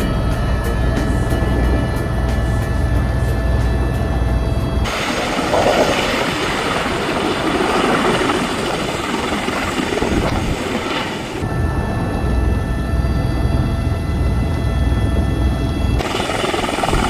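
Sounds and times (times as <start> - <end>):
helicopter rushing noise: 0.0 - 17.0.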